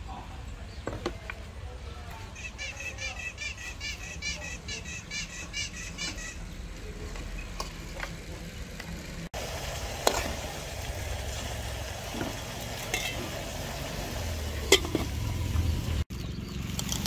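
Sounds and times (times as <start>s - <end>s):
bird chirping rapidly: 2.3s - 6.7s
gas burner rumble: 6.4s - 17.0s
utensil clinking against pot: 12.2s - 13.4s, 14.6s - 15.2s.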